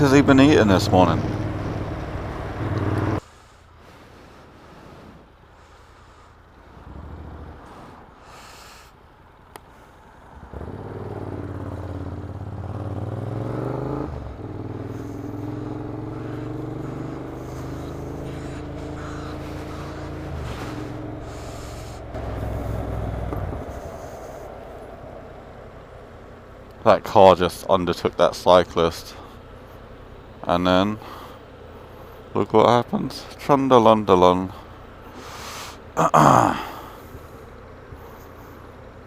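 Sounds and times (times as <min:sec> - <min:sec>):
motorcycle engine pulling away: 0:00.0 - 0:03.2, 0:10.2 - 0:26.9.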